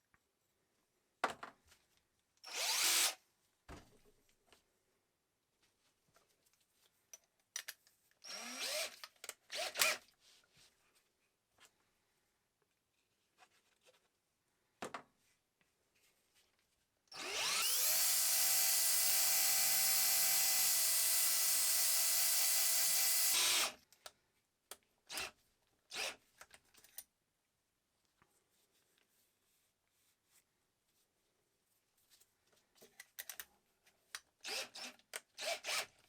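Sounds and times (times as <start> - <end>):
clicks and taps of parts handled: 7.1 - 8.2, 32.8 - 33.5
electric power tool running: 17.2 - 23.7.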